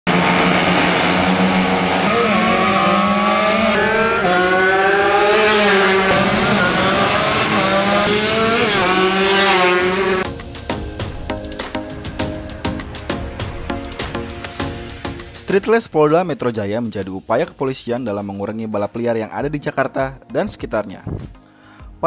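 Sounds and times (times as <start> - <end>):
motorcycle engines revving: 0.1 - 10.2.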